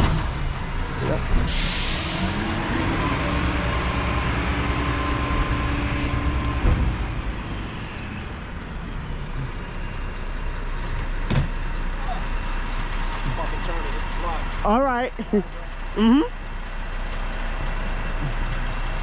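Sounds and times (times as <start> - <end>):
truck clunk: 0.0 - 13.4
recycling truck engine whine: 0.0 - 19.0.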